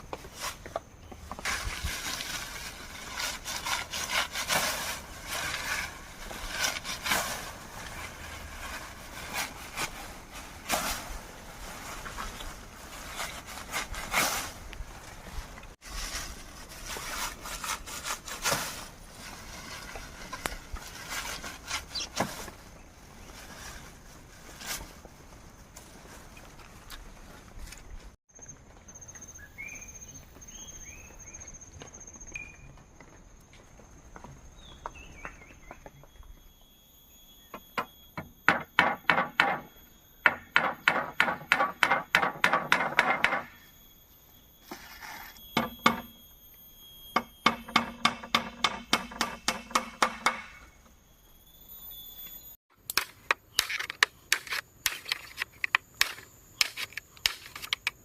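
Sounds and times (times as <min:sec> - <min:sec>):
hand tool striking bamboo: 0:37.8 - 0:43.6, 0:47.2 - 0:50.7, 0:52.8 - 0:58.0.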